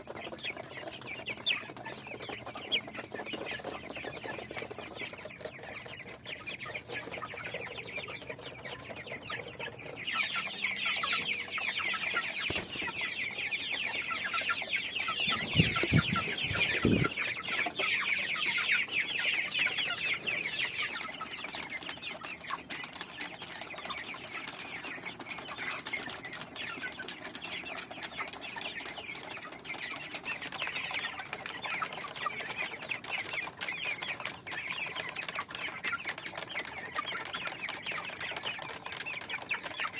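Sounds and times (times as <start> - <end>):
chickens clucking and chirping: 0.0 - 39.9.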